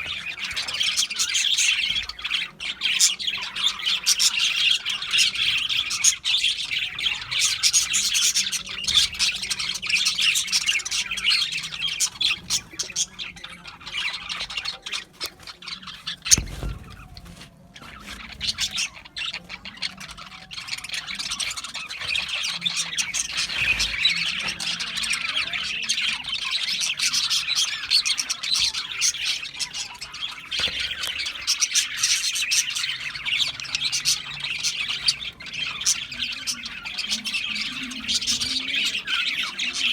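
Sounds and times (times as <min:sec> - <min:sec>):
budgerigars chattering and squawking: 0:00.0 - 0:39.9
short thump: 0:16.3 - 0:17.4.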